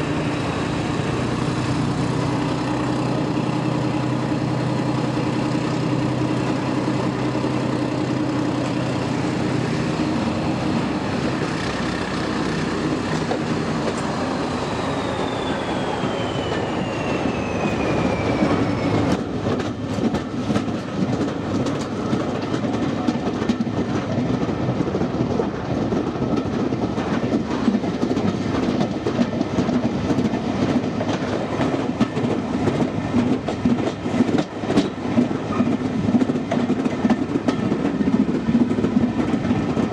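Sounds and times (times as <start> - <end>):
train engine drone: 0.0 - 39.9
train wheels clattering: 0.0 - 39.9
high whine sliding down: 13.2 - 19.3.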